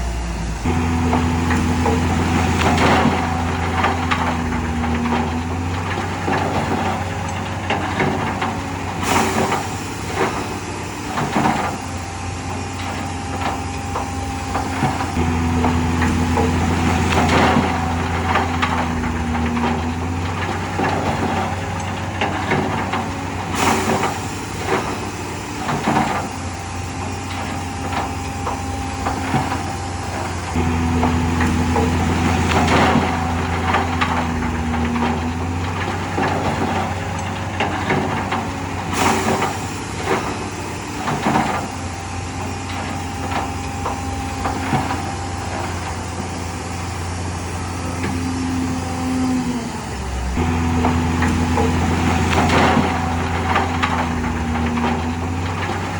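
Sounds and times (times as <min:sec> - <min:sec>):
diesel machinery engine running: 0:00.0 - 0:55.9.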